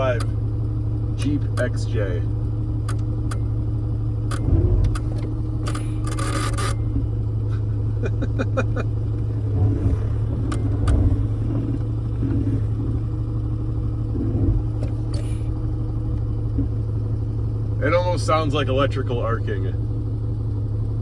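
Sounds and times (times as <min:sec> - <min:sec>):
vehicle engine hum: 0:00.0 - 0:21.0
relay clicking and buzzing: 0:04.3 - 0:07.0.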